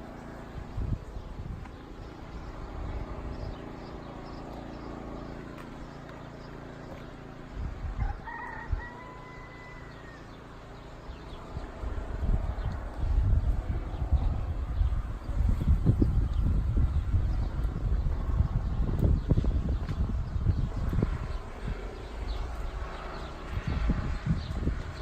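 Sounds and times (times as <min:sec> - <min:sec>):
wind rumble on microphone: 0:00.0 - 0:25.0
rooster crowing: 0:08.0 - 0:10.4.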